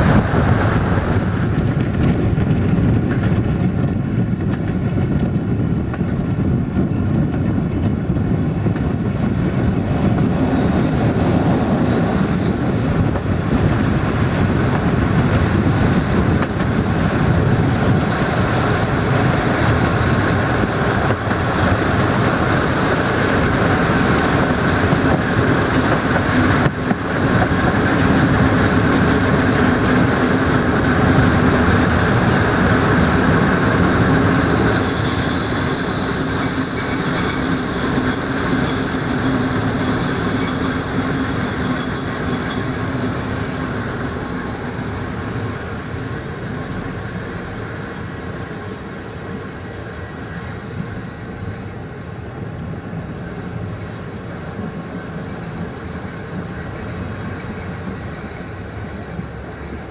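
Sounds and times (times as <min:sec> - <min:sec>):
train wheels rumbling on rails: 0:00.0 - 0:59.9
high wheel squeal: 0:32.6 - 0:48.2.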